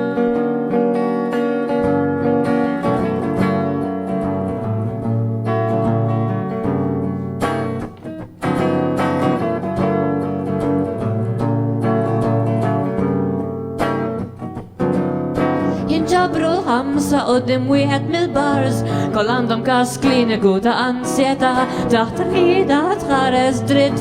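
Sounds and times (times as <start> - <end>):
strummed guitar: 0.0 - 24.0.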